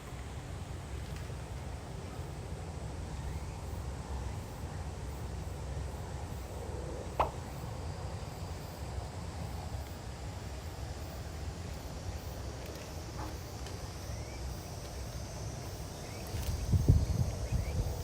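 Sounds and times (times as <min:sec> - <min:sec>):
gusty wind buffeting microphone: 0:16.0 - 0:18.0.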